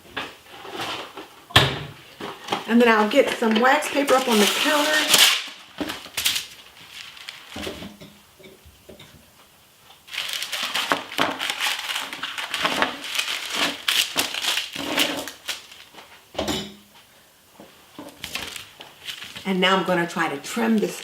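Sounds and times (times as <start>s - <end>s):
wrapping crinkling and rustling: 2.1s - 8.1s, 9.8s - 16.4s, 17.6s - 21.0s.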